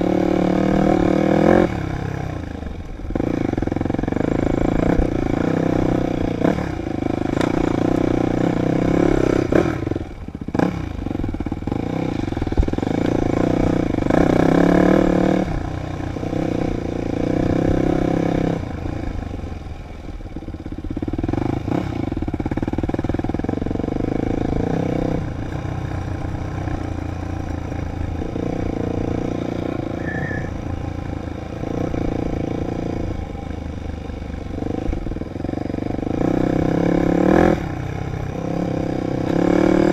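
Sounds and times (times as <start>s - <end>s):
dirt bike engine revving: 21.0s - 33.5s, 34.5s - 39.9s.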